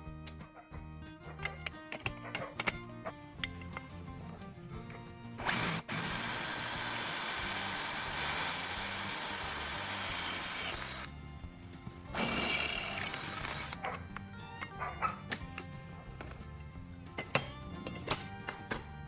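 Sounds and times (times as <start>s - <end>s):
background music: 0.0s - 19.0s
power tool motor whining: 5.4s - 11.1s, 12.2s - 13.8s.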